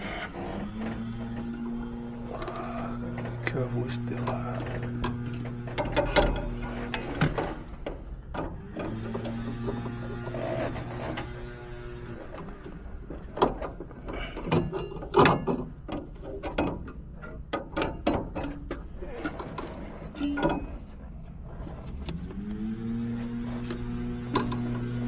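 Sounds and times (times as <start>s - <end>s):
metal tools clicking and clanking: 0.0s - 11.3s, 12.0s - 21.2s, 24.3s - 25.0s.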